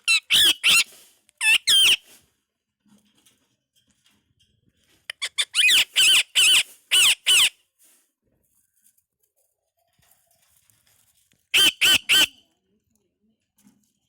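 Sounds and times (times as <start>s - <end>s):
parakeet chirps: 0.1s - 0.8s, 1.4s - 2.0s, 5.2s - 7.5s, 11.6s - 12.3s
parakeet harsh calls: 0.1s - 0.8s, 1.4s - 2.0s, 5.3s - 7.5s.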